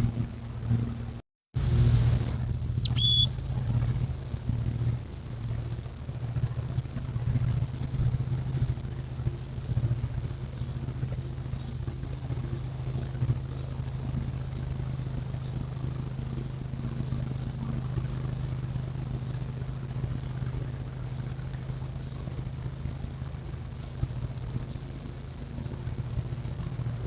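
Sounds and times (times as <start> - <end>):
low mechanical hum: 0.0 - 27.0
high bird chirps: 2.5 - 3.3, 11.0 - 12.0.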